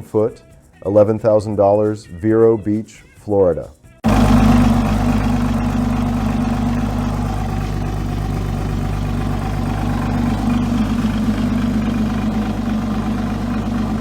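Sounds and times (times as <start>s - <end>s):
outboard engine idling: 4.0s - 14.0s.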